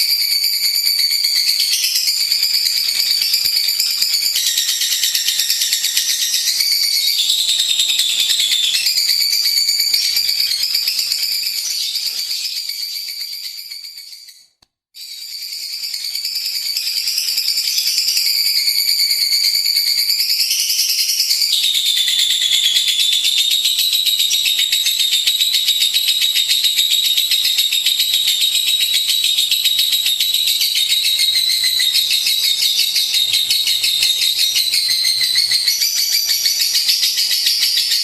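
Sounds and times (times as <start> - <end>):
lovebird chattering trill: 1.3 - 13.6.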